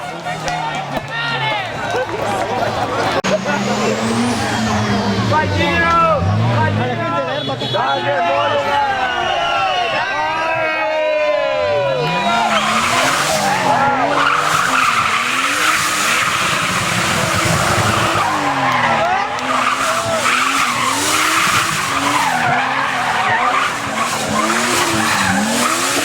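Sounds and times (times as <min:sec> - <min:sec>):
car engine revving: 0:00.0 - 0:07.2, 0:11.7 - 0:26.0
tyre squeal: 0:12.0 - 0:26.0.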